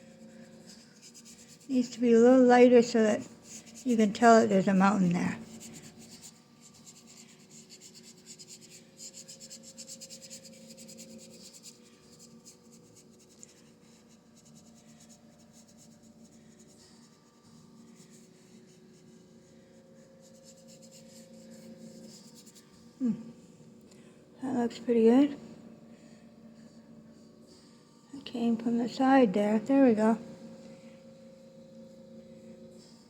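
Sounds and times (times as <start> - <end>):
paintbrush scratching on canvas: 0.0 - 22.8
faint steady hum: 0.0 - 33.0.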